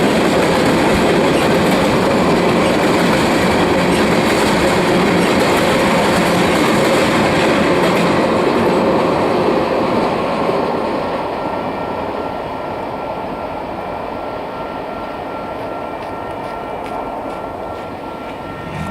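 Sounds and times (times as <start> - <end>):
freight train wheels rumbling: 0.0 - 11.7, 13.5 - 18.9
faint high whine: 18.2 - 18.9.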